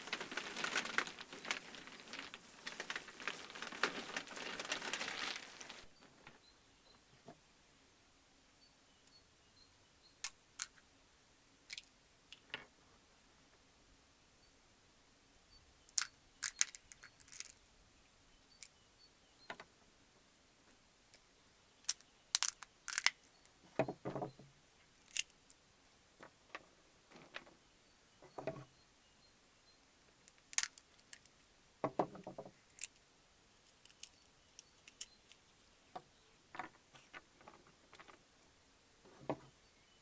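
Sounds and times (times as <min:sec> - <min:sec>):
small objects clicking and tapping: 0:10.2 - 0:10.8, 0:11.7 - 0:12.7, 0:15.9 - 0:17.6, 0:21.8 - 0:24.3, 0:25.0 - 0:25.6, 0:30.2 - 0:33.0, 0:33.6 - 0:35.4.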